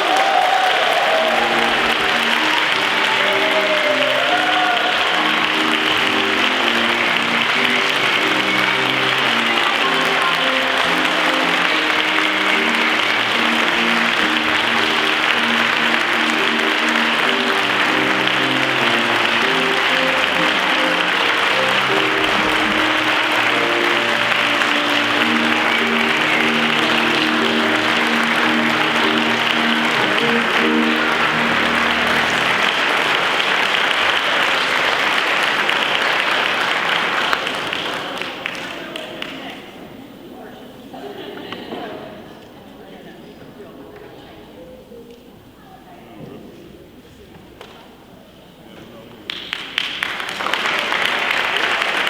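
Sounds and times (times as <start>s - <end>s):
audience applauding: 0.0s - 40.3s, 48.9s - 52.0s
instrumental music: 1.3s - 33.4s.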